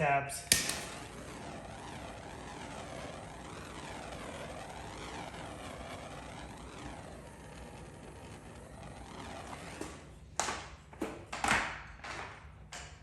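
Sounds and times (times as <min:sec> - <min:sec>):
droning noise sweeping up and down: 0:00.6 - 0:10.4.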